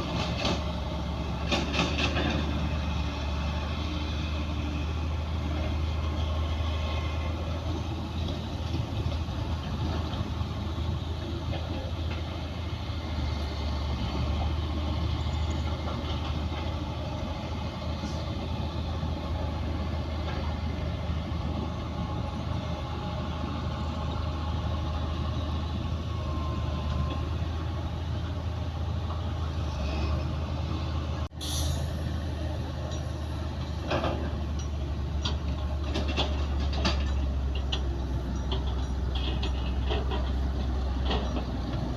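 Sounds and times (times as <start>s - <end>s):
diesel machinery engine drone: 0.0s - 41.9s
rattling clanks: 33.8s - 41.9s.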